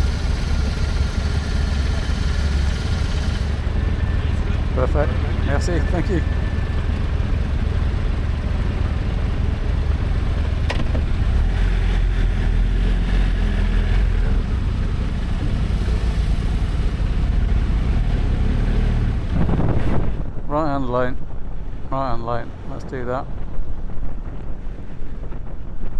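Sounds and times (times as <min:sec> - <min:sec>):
motorcycle engine running: 0:00.0 - 0:20.4.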